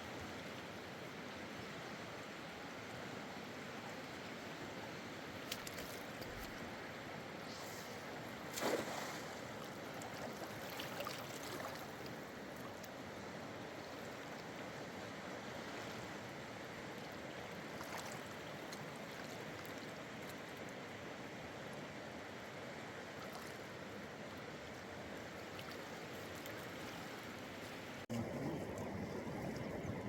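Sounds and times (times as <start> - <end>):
water splash: 8.5 - 9.5.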